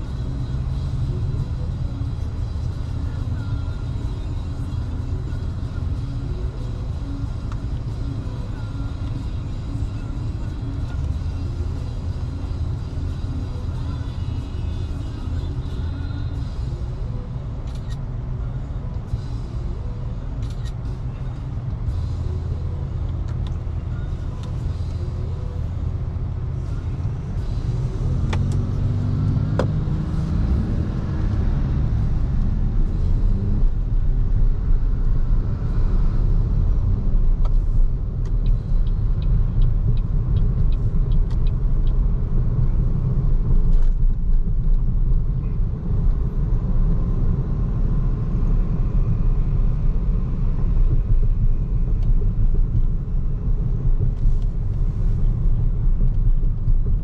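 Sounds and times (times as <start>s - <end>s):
car road rumble and tyre noise: 0.0s - 57.0s
light ticks: 38.2s - 42.0s.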